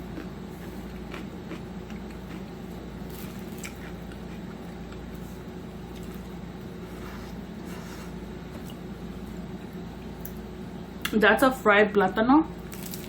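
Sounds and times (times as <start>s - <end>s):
person chewing: 0.0s - 10.4s
steady low hum: 0.0s - 13.0s.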